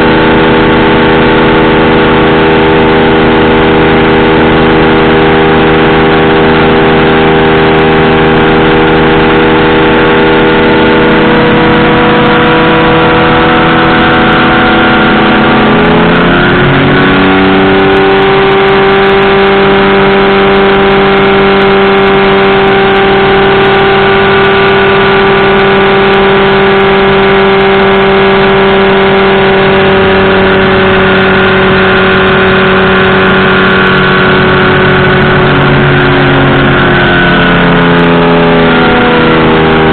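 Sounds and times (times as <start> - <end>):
powered parachute engine and propeller: 0.0 - 39.9.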